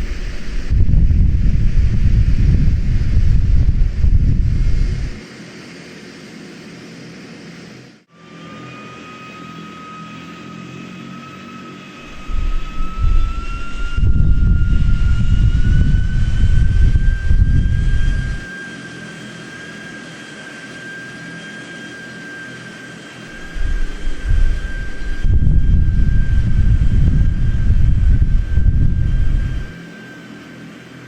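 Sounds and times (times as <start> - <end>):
wind buffeting microphone: 0.0 - 5.2, 12.0 - 18.5, 23.3 - 29.8
airplane engine whine: 0.0 - 31.0.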